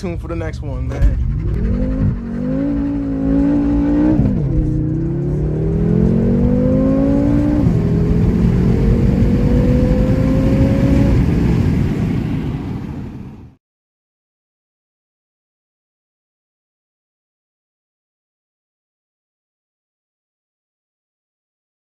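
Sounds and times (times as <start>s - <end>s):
car engine accelerating hard: 0.9s - 13.5s.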